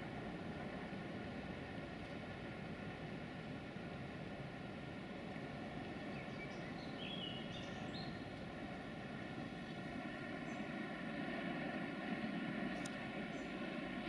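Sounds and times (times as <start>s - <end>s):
distant train rumble: 0.0s - 14.0s
bird chirps: 6.0s - 8.2s.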